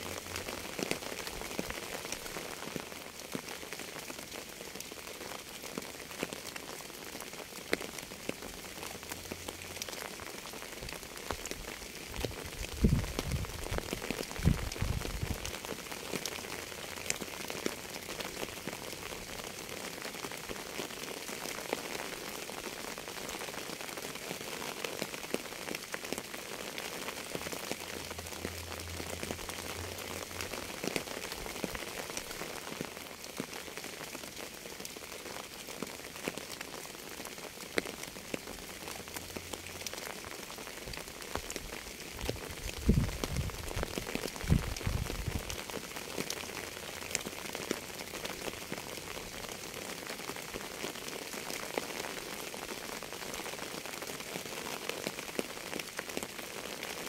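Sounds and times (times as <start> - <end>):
rain drops ticking: 0.0 - 57.0.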